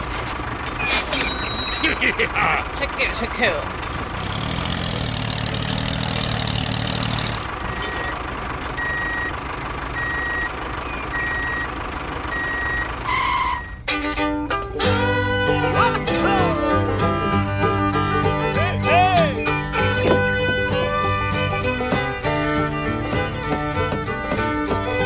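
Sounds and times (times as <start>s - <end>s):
motor hum: 0.0s - 25.0s
vehicle reversing alarm beeping: 0.8s - 2.6s, 6.9s - 13.9s
fiddle and banjo music: 13.1s - 25.0s.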